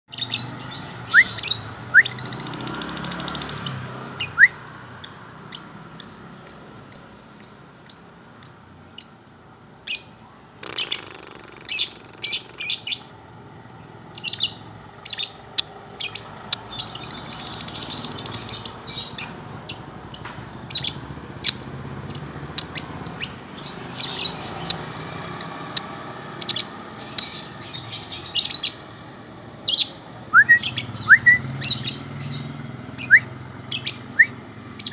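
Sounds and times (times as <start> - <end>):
songbirds chirping: 0.1 - 34.9
rising bird whistles: 1.0 - 2.6, 4.2 - 4.6, 30.3 - 31.9, 33.0 - 34.9.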